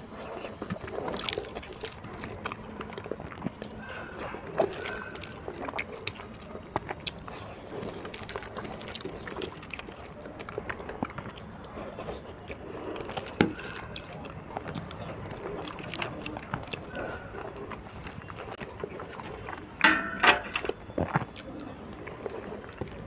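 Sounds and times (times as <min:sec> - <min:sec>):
person chewing and smacking: 0:00.0 - 0:23.0.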